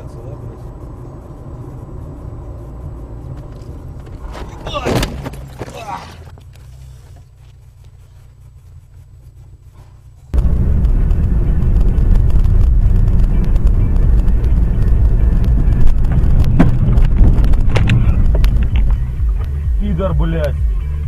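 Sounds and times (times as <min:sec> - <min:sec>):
low rumbling vehicle noise: 0:00.0 - 0:21.0.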